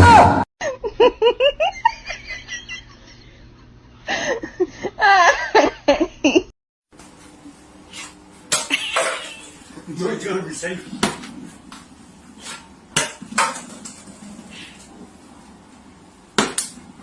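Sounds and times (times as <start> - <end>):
person laughing and giggling: 0.6 - 6.5.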